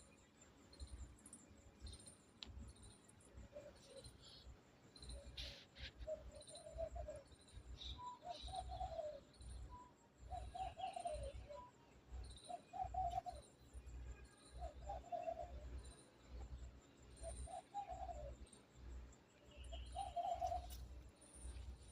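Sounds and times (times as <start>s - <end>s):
small birds chirping faintly: 0.0s - 21.9s
doves cooing: 8.2s - 9.2s, 17.2s - 18.4s, 19.7s - 20.8s.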